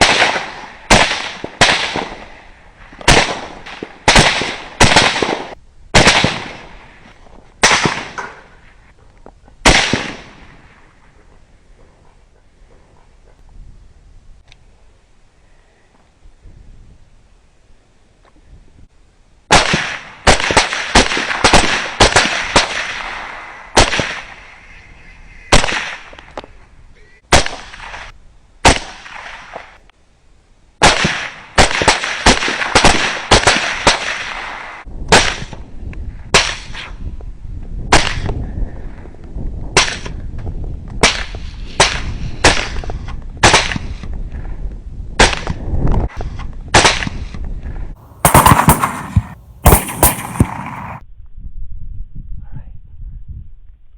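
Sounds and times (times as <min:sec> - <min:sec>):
gunshots with ringing tail: 0:03.1 - 0:06.8, 0:48.0 - 0:51.0.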